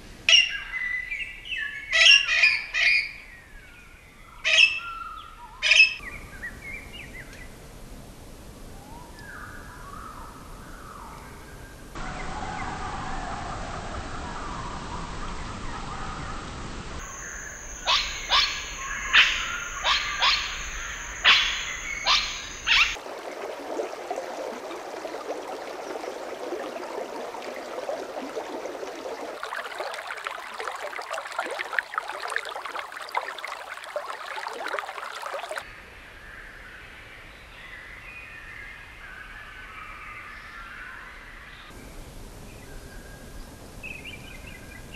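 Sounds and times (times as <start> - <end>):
bird chorus chirping: 17.0 - 23.0
loud sharp bird calls: 17.0 - 23.0.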